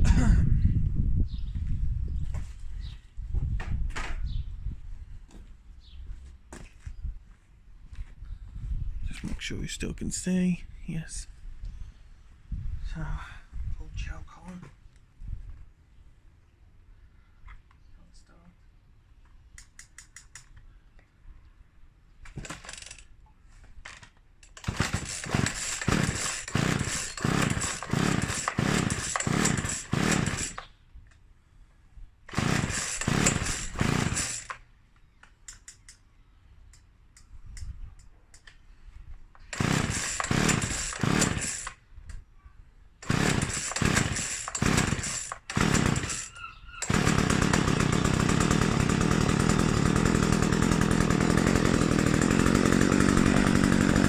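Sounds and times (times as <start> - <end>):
chainsaw recoil starter pulls: 22.3 - 23.1, 23.8 - 30.7, 32.3 - 34.6, 39.4 - 41.8, 43.0 - 54.0
chainsaw engine running: 24.6 - 30.6, 32.3 - 34.6, 39.4 - 41.8, 43.0 - 54.0.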